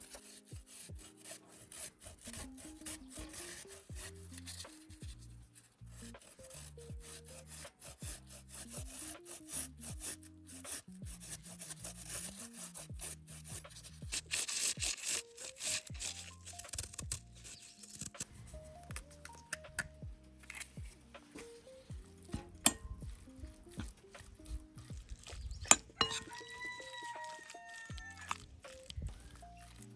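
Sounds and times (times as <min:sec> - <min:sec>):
background music: 0:00.0 - 0:29.9
scraping of food preparation: 0:13.4 - 0:29.9.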